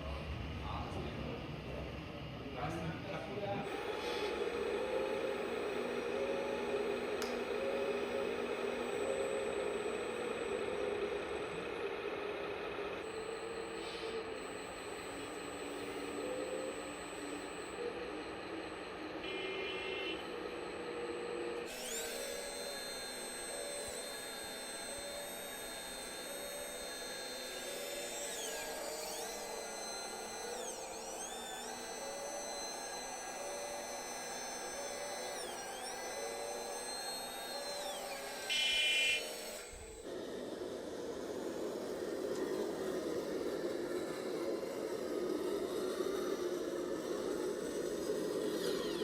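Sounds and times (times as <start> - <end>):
electric motor whine: 0.0 - 49.0
short electronic beeps: 38.5 - 39.3.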